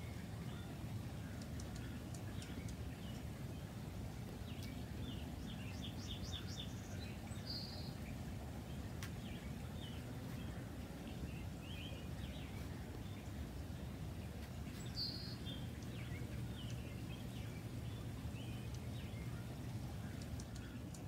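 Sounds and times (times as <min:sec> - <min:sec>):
low background rumble: 0:00.0 - 0:21.0
small birds chirping: 0:00.0 - 0:21.0.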